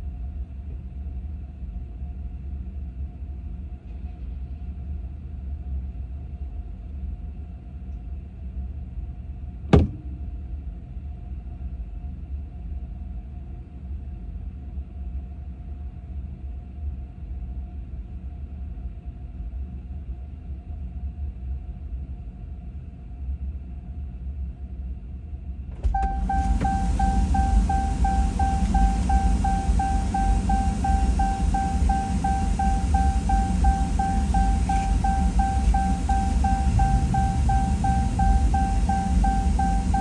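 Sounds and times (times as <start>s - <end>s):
sharp knock: 9.7s - 10.2s
faint steady hum: 25.0s - 40.0s
car engine rumbling: 25.7s - 40.0s.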